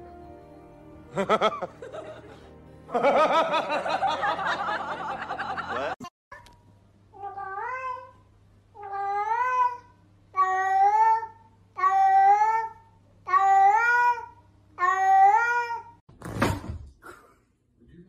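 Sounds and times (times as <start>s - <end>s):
wobbling laughter sound effect: 1.1s - 6.0s
cat meowing: 7.2s - 8.1s, 8.8s - 12.7s.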